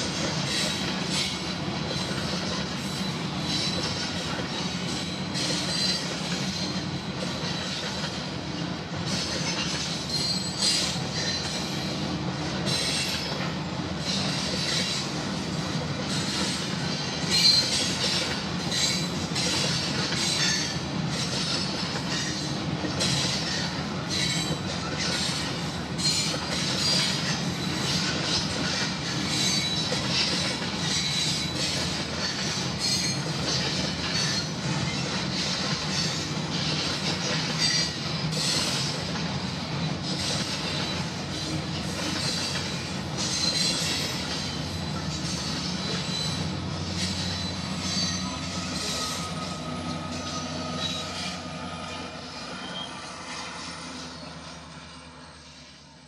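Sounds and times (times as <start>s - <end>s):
wheels clattering on rails: 0.0s - 55.7s
high-pitched wheel squeal: 10.1s - 11.4s, 45.2s - 54.6s.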